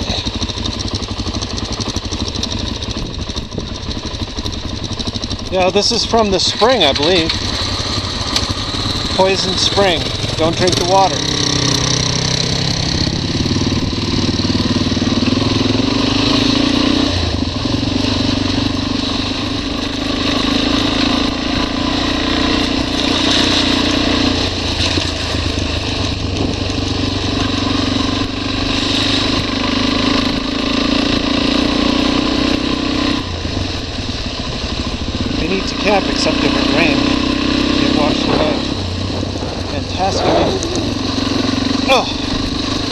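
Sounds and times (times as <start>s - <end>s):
motorcycle engine running: 0.0s - 42.9s
steady rushing noise: 37.9s - 42.9s.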